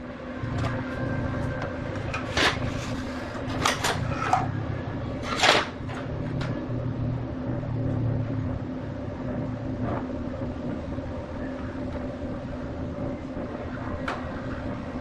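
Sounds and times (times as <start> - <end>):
machine humming: 0.0 - 15.0
clattering knocks and scrapes: 1.4 - 6.6.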